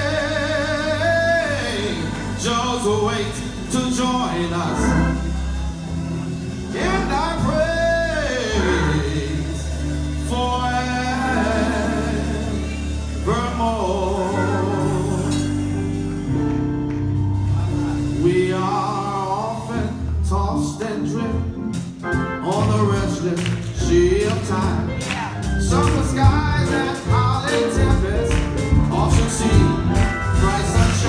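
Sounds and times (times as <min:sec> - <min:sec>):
instrumental accompaniment: 0:00.0 - 0:31.0
person singing a gospel hymn: 0:00.0 - 0:31.0
steady bass line: 0:00.0 - 0:31.0.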